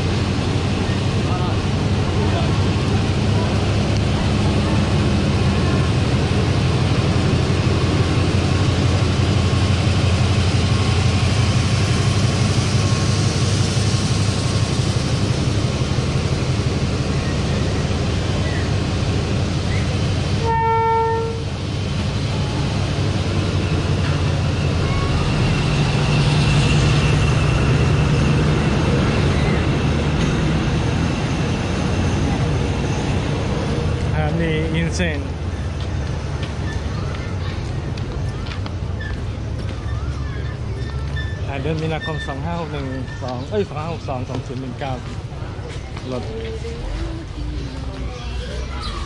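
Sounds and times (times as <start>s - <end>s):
train rumbling: 0.0s - 49.0s
short train horn toot: 20.4s - 21.4s.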